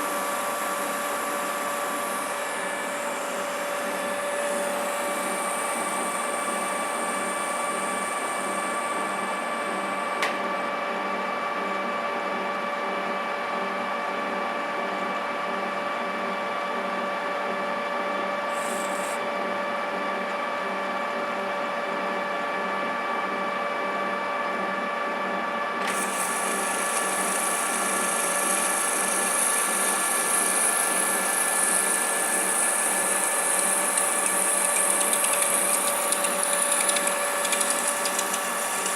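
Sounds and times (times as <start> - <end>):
metal lathe whining: 0.0 - 10.2, 18.5 - 19.2, 25.8 - 38.9
lathe click: 32.7 - 38.9.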